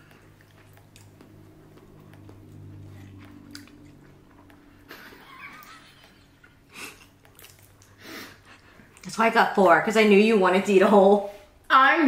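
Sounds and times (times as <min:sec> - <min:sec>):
chewing and wet mouth sounds: 0:00.0 - 0:09.1
steady low hum: 0:00.0 - 0:11.7.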